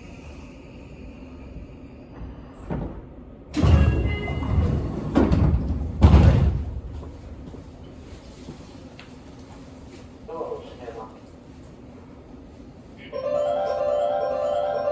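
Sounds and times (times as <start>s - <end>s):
sliding train doors clattering: 2.6s - 10.1s.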